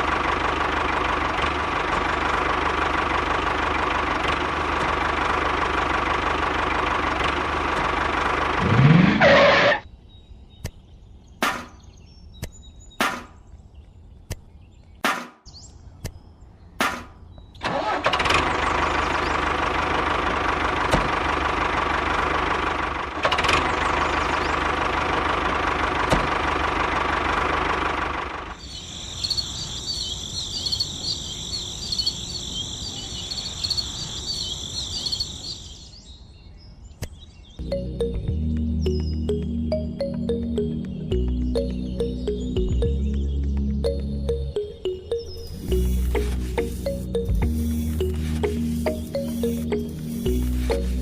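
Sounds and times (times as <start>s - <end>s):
small engine running: 0.0s - 9.8s, 17.7s - 28.6s, 45.5s - 51.0s.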